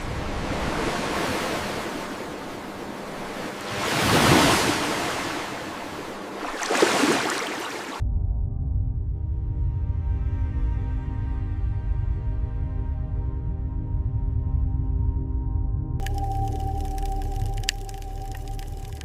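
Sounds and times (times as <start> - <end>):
ocean waves washing: 0.0 - 8.0, 16.0 - 19.0
low ambient music: 8.0 - 19.0.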